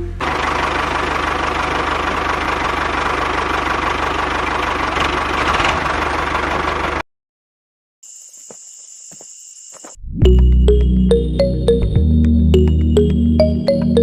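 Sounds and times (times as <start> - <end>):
small model diesel engine: 0.0 - 7.0.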